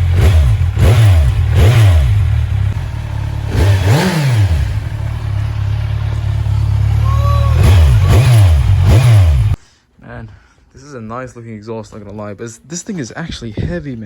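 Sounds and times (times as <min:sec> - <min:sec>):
motorcycle engine revving and idling: 0:00.0 - 0:09.6.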